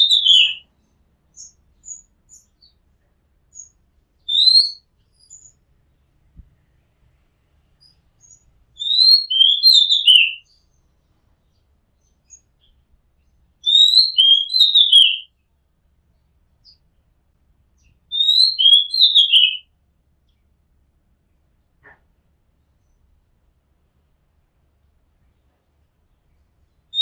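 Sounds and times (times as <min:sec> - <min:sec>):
bird singing whistled notes: 0:00.0 - 0:00.7, 0:01.3 - 0:02.8, 0:03.5 - 0:05.6, 0:07.8 - 0:10.8, 0:13.6 - 0:15.3, 0:17.8 - 0:19.6.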